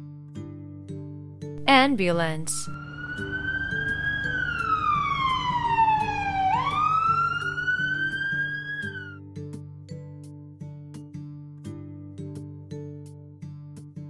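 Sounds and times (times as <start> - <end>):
background music: 1.6 - 4.4
wailing siren: 2.8 - 9.2.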